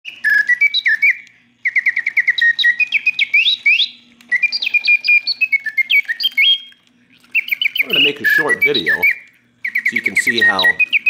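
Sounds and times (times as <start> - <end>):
faint steady hum: 0.1 - 11.0
mechanical bird whistling: 0.1 - 11.0.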